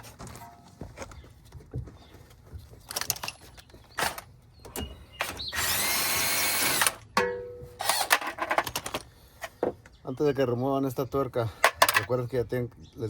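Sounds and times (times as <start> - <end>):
handheld power tool running: 5.2 - 7.0, 7.8 - 8.3.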